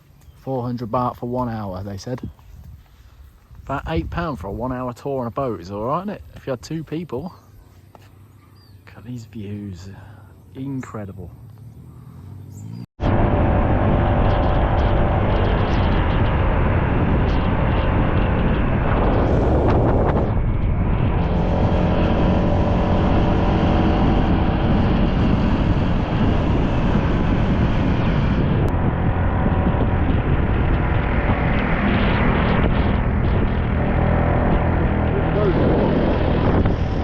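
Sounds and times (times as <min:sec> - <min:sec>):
wind rush on microphone: 0:01.6 - 0:05.0, 0:13.0 - 0:37.0
motor scooter engine drone: 0:10.0 - 0:37.0.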